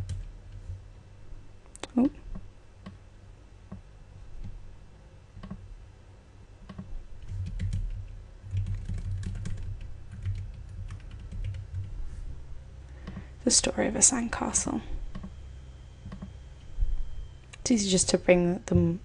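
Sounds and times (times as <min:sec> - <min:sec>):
typing on computer keyboard: 0:06.7 - 0:11.9.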